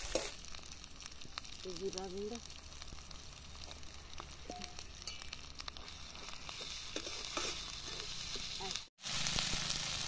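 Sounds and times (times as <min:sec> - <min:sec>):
onions sizzling in oil: 0:00.0 - 0:10.0
spatula scraping pan: 0:05.1 - 0:08.8.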